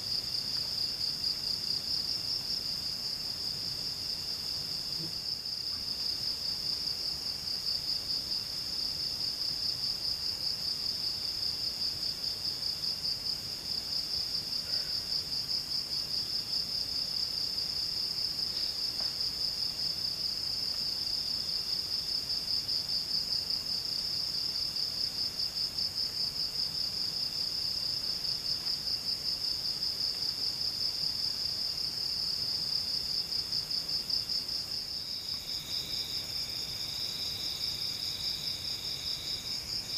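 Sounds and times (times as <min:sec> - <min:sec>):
lower insect trill: 0:00.0 - 0:39.9
high pulsing insect trill: 0:26.7 - 0:39.9.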